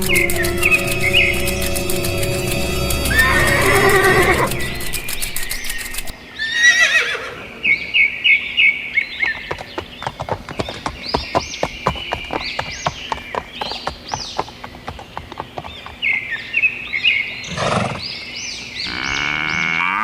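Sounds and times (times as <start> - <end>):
horse whinnying: 6.4 - 7.5, 18.9 - 20.0
hooves clip-clopping: 9.2 - 16.8.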